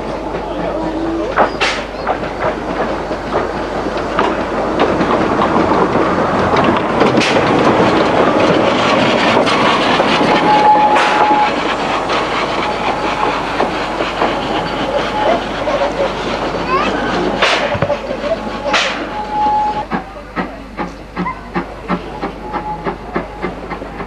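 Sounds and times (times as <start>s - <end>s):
train wheels rattling: 0.0s - 24.0s.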